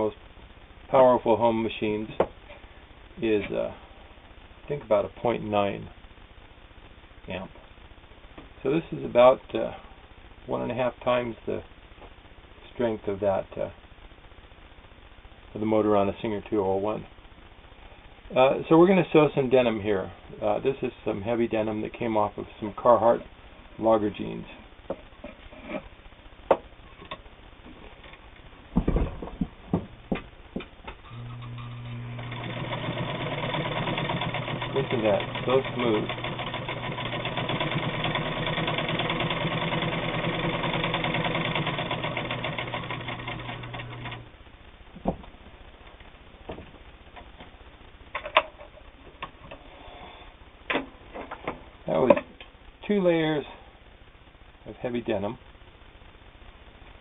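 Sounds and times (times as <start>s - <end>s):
sewing machine motor humming: 31.1s - 44.3s.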